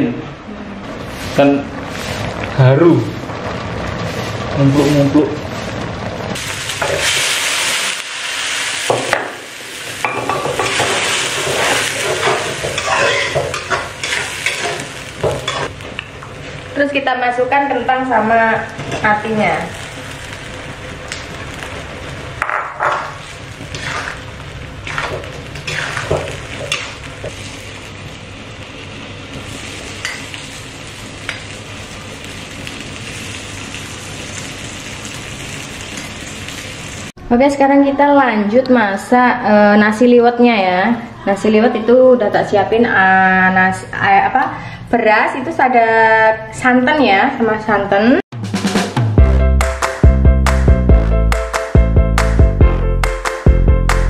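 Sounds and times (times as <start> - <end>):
chili paste sizzling in a wok: 0.5 - 37.2
metal spatula scraping a pan: 10.1 - 15.7, 22.5 - 24.2, 24.8 - 27.1.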